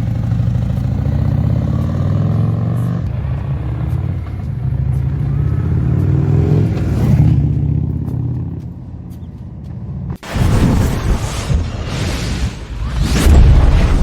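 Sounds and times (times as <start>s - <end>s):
car engine revving: 0.0s - 10.2s
rushing noise: 10.2s - 14.0s.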